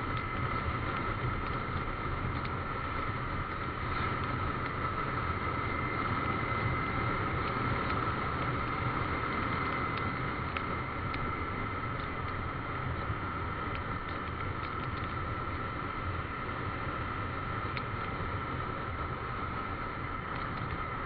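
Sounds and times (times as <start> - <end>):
motorcycle engine and wind: 0.0 - 21.0
steady whine: 0.0 - 21.0
light ticks: 0.1 - 4.9, 7.4 - 8.8, 9.4 - 12.5, 13.5 - 15.6, 17.6 - 18.0, 20.2 - 21.0.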